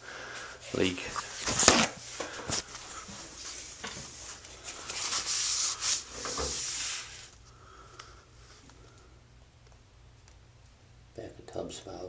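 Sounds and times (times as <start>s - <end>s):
rubbing and scuffing: 0.6s - 7.4s.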